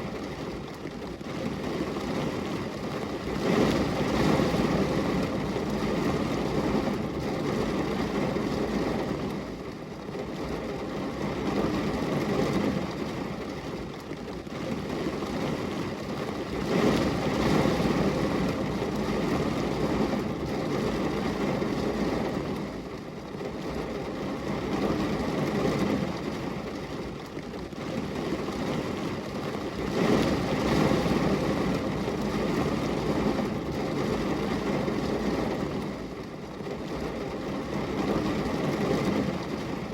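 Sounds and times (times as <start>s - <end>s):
rain on a glass window: 0.0s - 39.9s.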